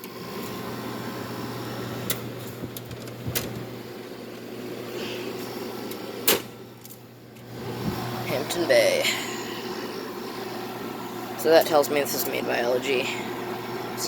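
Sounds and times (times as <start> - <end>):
air conditioner compressor humming: 0.0 - 14.0
fan rushing air: 0.0 - 14.0
person speaking: 8.2 - 9.8, 11.3 - 13.4.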